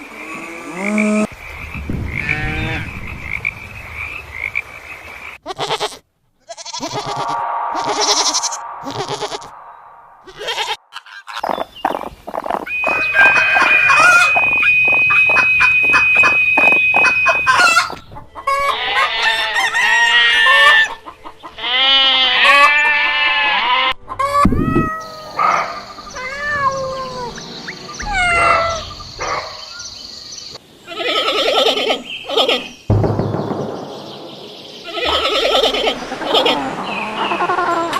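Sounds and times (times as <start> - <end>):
chickens clucking: 10.9 - 21.6.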